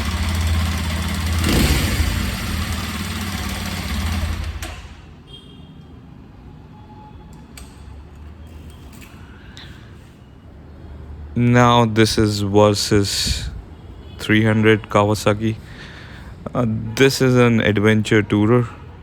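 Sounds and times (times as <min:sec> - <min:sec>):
motorcycle engine idling: 0:00.0 - 0:05.0.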